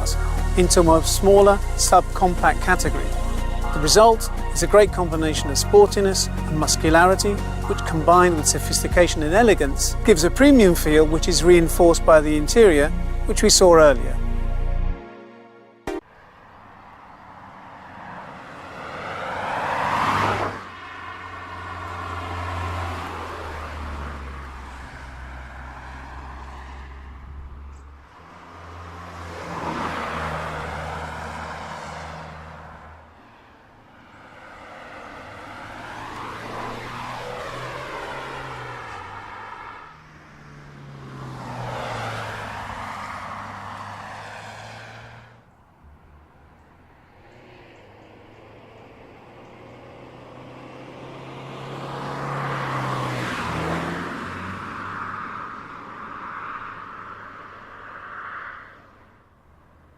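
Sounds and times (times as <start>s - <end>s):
car driving past: 16.7s - 57.2s.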